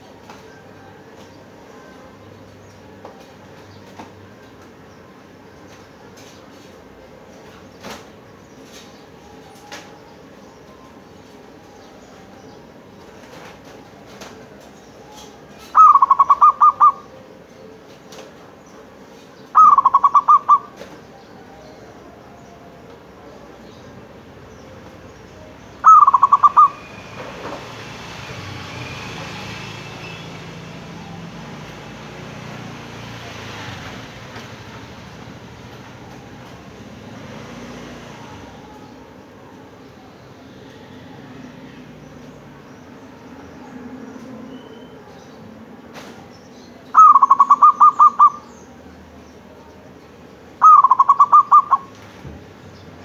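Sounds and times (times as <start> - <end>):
dove cooing: 13.0 - 17.7, 19.5 - 23.6, 24.8 - 27.6, 46.9 - 48.8, 50.6 - 52.2.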